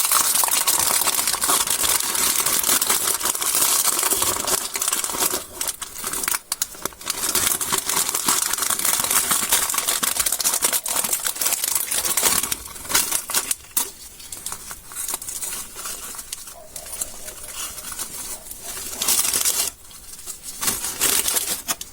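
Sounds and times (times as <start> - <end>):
candy wrappers crinkling: 0.0 - 21.9.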